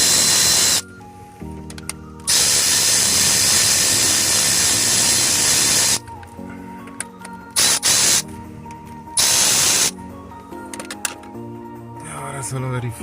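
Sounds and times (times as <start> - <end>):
air ratchet hissing: 0.0 - 0.8, 2.3 - 6.0, 7.6 - 8.2, 9.2 - 9.9.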